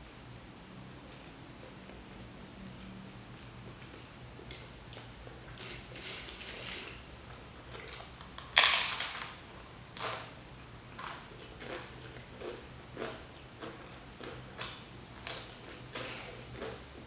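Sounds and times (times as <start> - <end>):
chewing crunches: 1.6 - 17.0
crunchy bite into crisps: 7.8 - 9.4.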